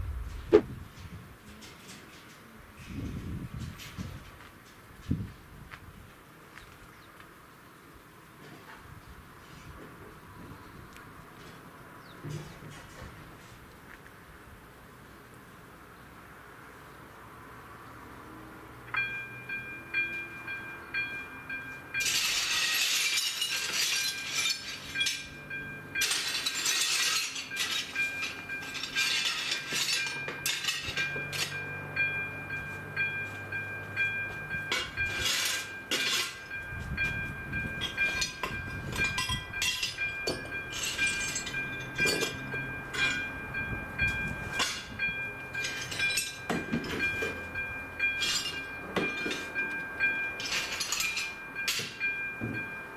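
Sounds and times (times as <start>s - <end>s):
train approaching noisily: 0.0s - 52.9s
level crossing warning bell: 18.2s - 52.9s
train wheels rumbling: 18.9s - 52.9s.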